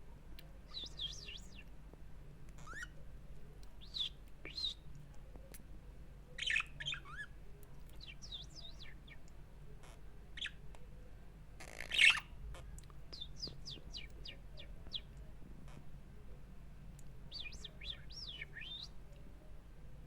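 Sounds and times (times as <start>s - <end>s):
budgerigars chirping and warbling: 2.6s - 2.9s, 6.4s - 7.3s, 8.0s - 9.2s, 11.6s - 12.3s, 13.2s - 15.1s, 17.3s - 18.9s.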